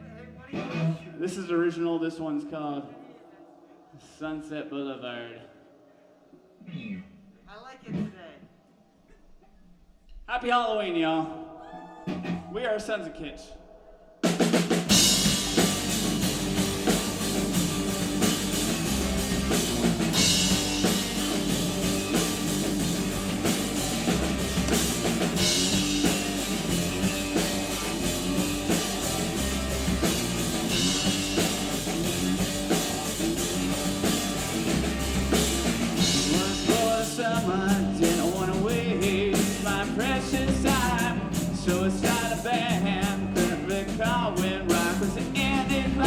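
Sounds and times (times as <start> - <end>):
bass guitar: 0.0 - 1.2, 14.9 - 46.0
electric guitar: 0.0 - 1.2, 14.9 - 46.0
drum kit beat: 14.2 - 46.0.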